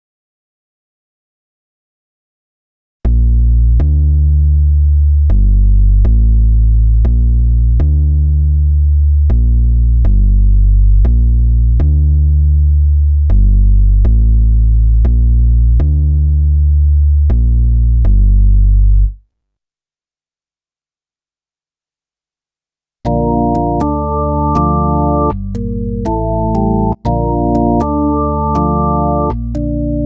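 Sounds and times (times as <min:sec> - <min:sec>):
synth bass notes: 0:03.1 - 0:19.1, 0:23.1 - 0:30.0.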